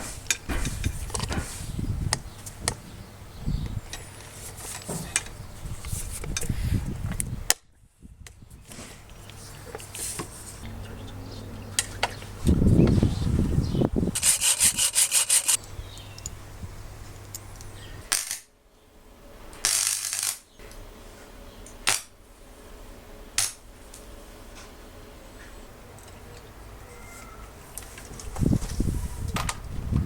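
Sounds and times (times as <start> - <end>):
rustling: 14.1 - 15.6.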